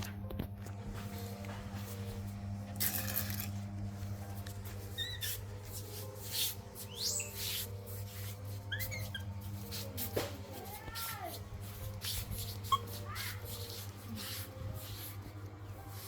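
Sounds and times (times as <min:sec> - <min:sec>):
rustling and handling noises: 0:00.0 - 0:16.0
baby monkey squeaking: 0:04.9 - 0:05.4, 0:06.3 - 0:07.7, 0:08.5 - 0:09.8, 0:12.0 - 0:14.4.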